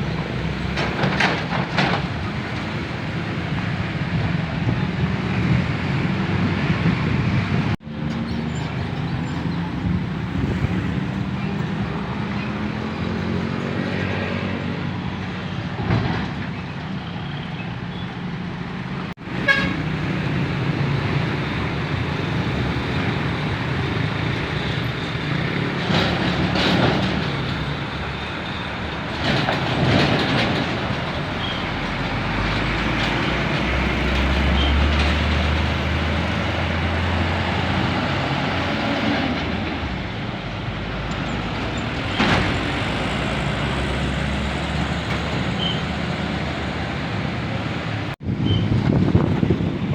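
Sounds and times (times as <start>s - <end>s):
trucks driving by: 0.0s - 49.9s
truck horn toots: 19.3s - 20.0s.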